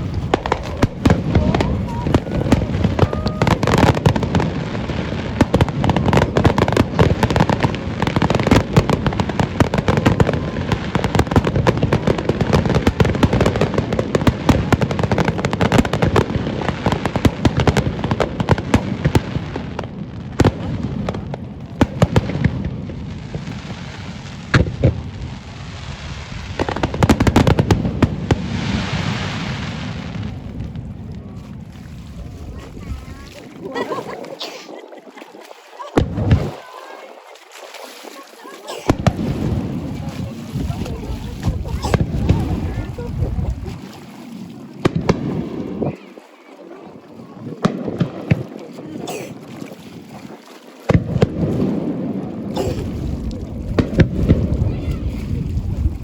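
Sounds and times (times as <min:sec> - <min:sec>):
fireworks bursting: 0:00.0 - 0:31.2, 0:35.9 - 0:37.2, 0:38.8 - 0:43.8, 0:44.8 - 0:46.0, 0:52.8 - 0:54.7
hissing crackle: 0:00.0 - 0:31.7.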